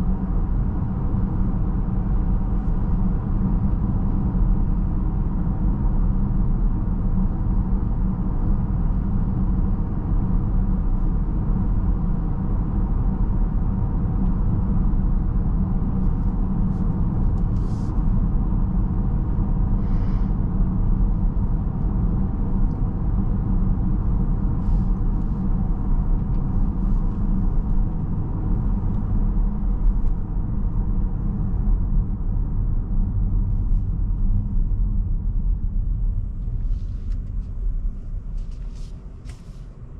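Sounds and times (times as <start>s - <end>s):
road and tyre rumble in car cabin: 0.0s - 39.9s.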